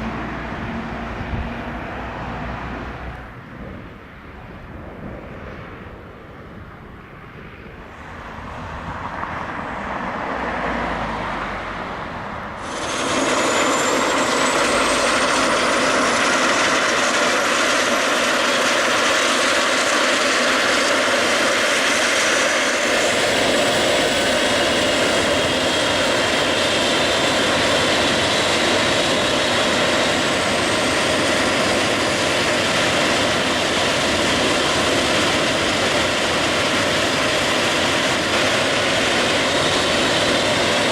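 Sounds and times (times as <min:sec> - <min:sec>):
helicopter turbine engine running: 0:12.0 - 0:40.9
high turbine whine rising in pitch: 0:12.3 - 0:40.9.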